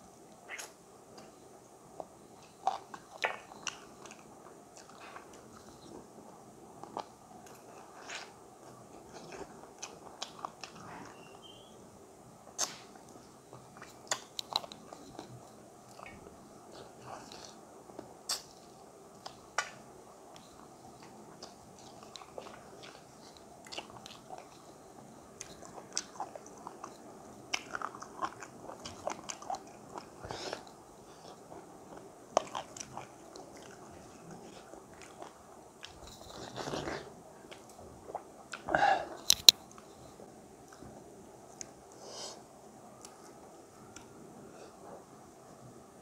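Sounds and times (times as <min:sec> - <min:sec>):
chewing and mouth clicks: 0:00.5 - 0:01.3, 0:02.0 - 0:05.9, 0:13.8 - 0:17.6, 0:19.2 - 0:24.7, 0:25.4 - 0:39.9.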